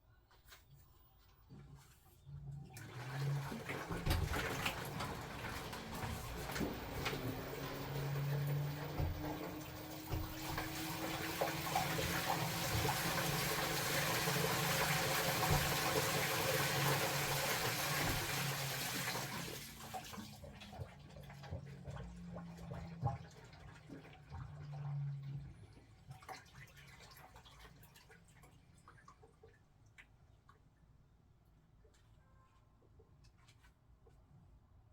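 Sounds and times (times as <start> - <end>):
faint drips and knocks: 0.3 - 30.7
water rushing into washing machine: 2.5 - 29.7.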